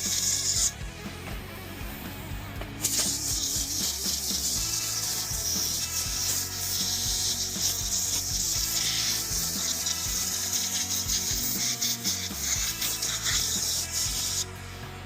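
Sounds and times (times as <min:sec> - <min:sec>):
scratchy rubbing and scraping: 0:02.8 - 0:14.5.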